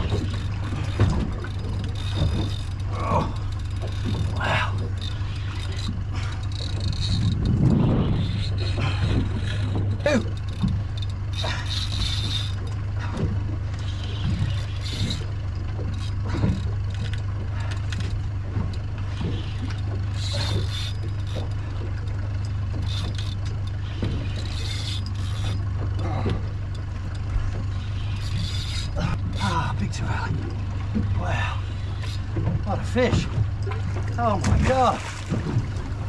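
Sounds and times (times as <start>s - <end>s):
fishing reel clicking: 0.0s - 8.5s, 14.0s - 18.2s, 22.7s - 25.6s
steady low hum: 0.0s - 36.0s.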